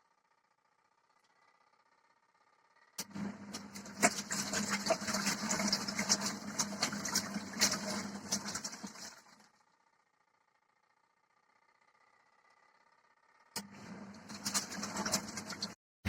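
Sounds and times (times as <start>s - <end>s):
washing machine motor hum: 1.8s - 10.0s, 11.6s - 15.8s
water sloshing in tub: 3.1s - 9.4s, 14.1s - 15.8s.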